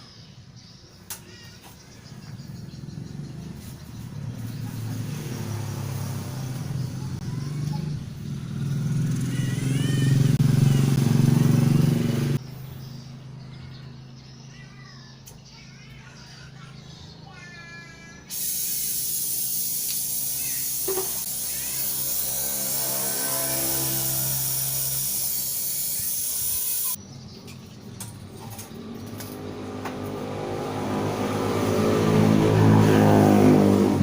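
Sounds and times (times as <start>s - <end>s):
engine-like hum: 0.0s - 34.0s
pressurised gas hissing: 18.3s - 27.0s.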